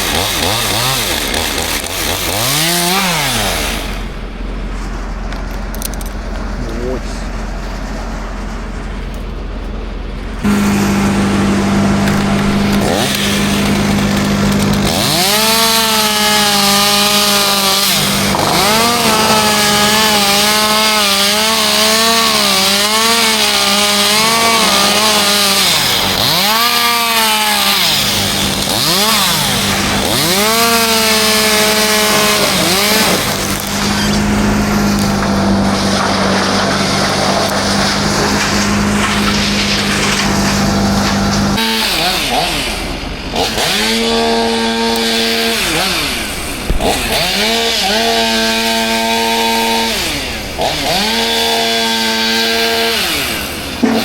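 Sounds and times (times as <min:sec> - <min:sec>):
chainsaw revving while cutting: 0:00.0 - 0:04.2, 0:10.4 - 0:54.0
low engine drone: 0:03.1 - 0:14.9.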